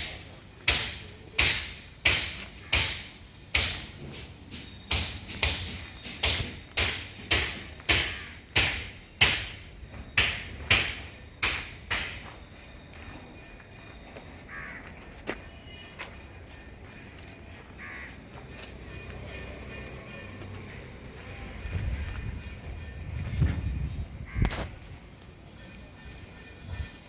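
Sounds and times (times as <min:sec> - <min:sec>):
sharp hard blows ringing: 0:00.0 - 0:14.1.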